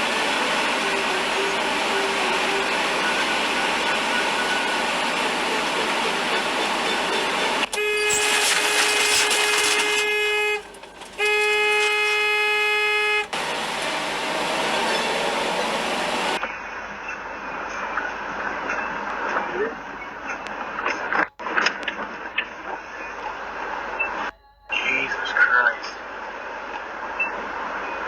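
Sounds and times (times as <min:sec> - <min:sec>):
road noise: 0:00.0 - 0:28.0
car horn blasts: 0:07.0 - 0:13.6.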